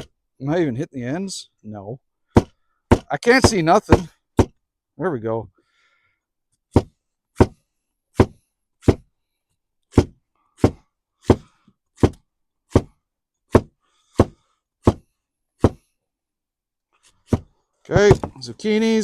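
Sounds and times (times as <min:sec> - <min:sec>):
knife chopping on cutting board: 0:13.5 - 0:15.0.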